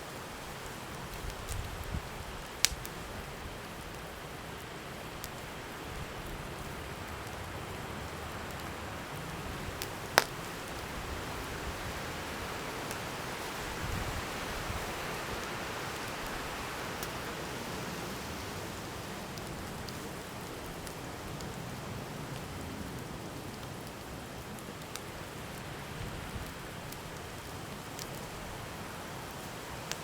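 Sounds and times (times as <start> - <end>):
campfire hissing: 0.0 - 30.0
wood crackling and popping: 0.0 - 30.0.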